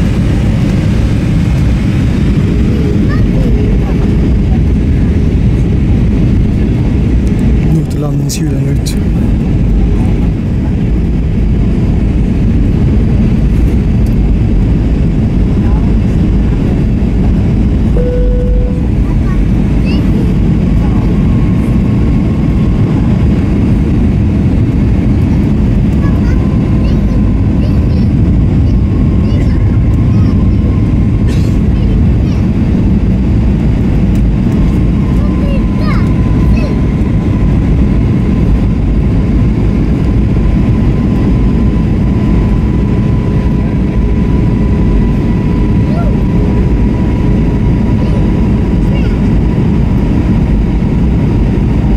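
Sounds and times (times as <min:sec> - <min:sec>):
airliner cabin rumble: 0:00.0 - 0:51.9
faint steady whine: 0:17.9 - 0:20.0.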